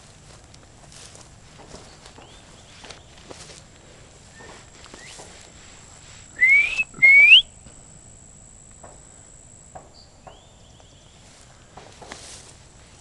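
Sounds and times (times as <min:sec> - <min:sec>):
faint rising whistle: 0:06.3 - 0:07.6
person whistling bird call: 0:06.4 - 0:07.5.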